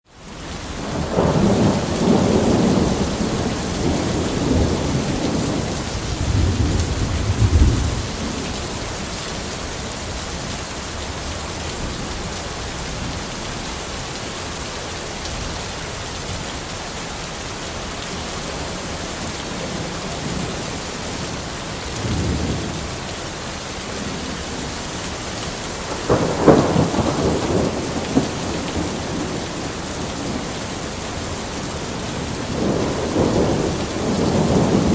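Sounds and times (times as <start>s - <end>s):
steady rain falling: 0.1s - 34.9s
thunder rumbling: 0.8s - 9.1s, 19.5s - 23.1s, 25.5s - 34.9s.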